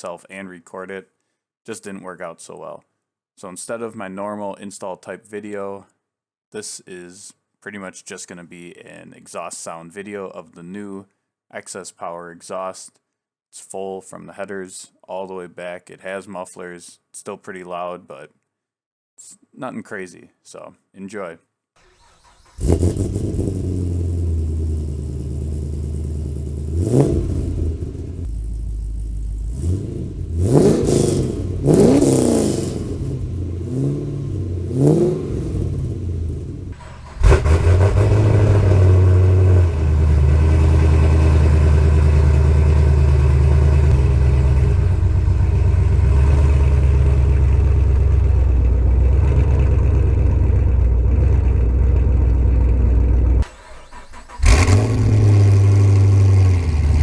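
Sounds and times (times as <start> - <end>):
car engine idling and revving: 22.0 - 57.0.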